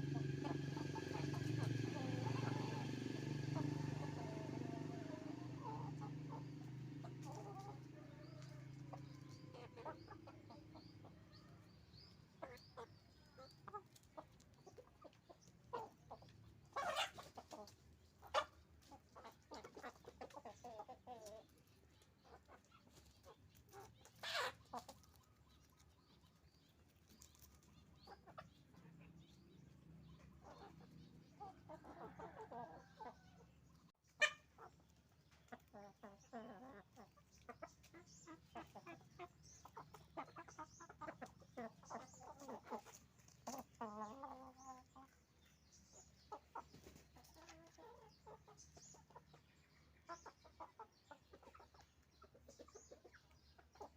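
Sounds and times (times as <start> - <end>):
chickens clucking: 0.0 - 53.9
chicken squawks: 15.8 - 18.6, 23.7 - 25.2, 34.2 - 34.8.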